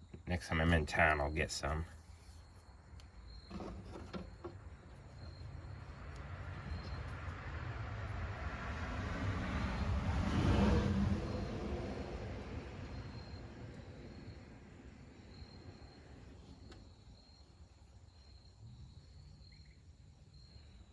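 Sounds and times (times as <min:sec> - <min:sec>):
faint cricket chirps: 0:00.0 - 0:08.5, 0:10.8 - 0:20.9
vehicle passing by: 0:05.0 - 0:16.4.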